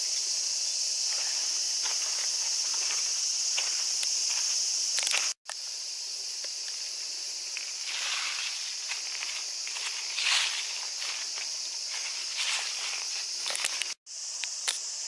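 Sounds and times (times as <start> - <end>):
cicadas chorus: 0.0 - 15.0
footsteps crunching on path: 1.0 - 5.4, 7.5 - 14.0.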